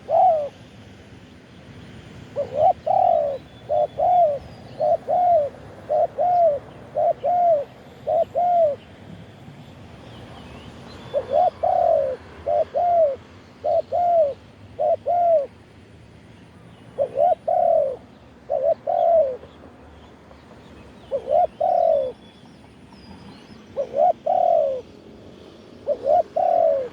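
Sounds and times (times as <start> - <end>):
dove cooing: 0.0 - 0.6, 2.3 - 8.8, 11.0 - 15.5, 17.0 - 19.6, 21.1 - 22.2, 23.7 - 25.0, 25.8 - 26.9.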